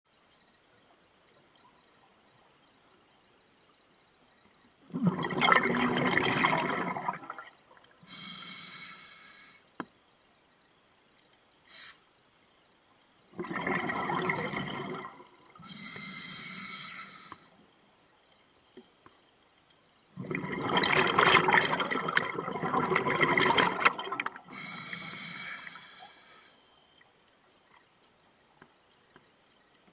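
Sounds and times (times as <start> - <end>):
exhaled bubbles gushing: 4.9 - 7.6, 13.3 - 15.6, 20.2 - 24.6
regulator inhalation hiss: 8.0 - 9.7, 11.7 - 12.0, 15.6 - 17.6, 24.5 - 26.7.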